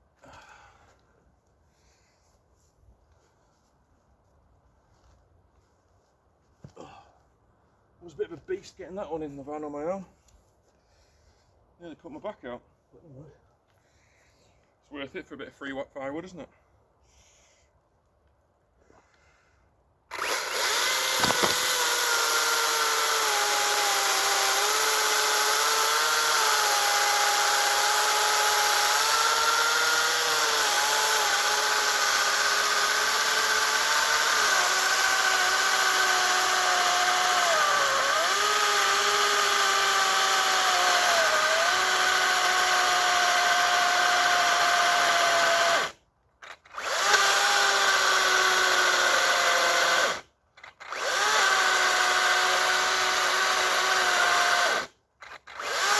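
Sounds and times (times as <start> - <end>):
electric chainsaw cutting logs: 20.1 - 55.9.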